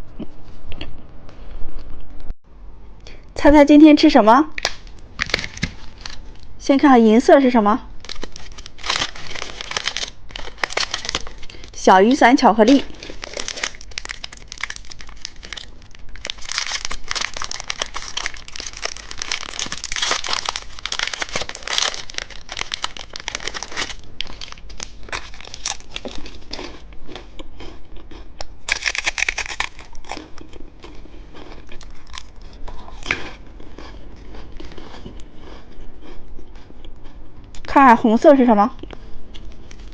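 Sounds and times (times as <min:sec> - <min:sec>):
candy wrapper crinkling: 0:04.6 - 0:06.5, 0:08.0 - 0:26.8, 0:28.6 - 0:33.2
wrapper tearing rustle: 0:04.6 - 0:06.5, 0:08.0 - 0:26.6, 0:28.7 - 0:30.2, 0:31.6 - 0:33.1.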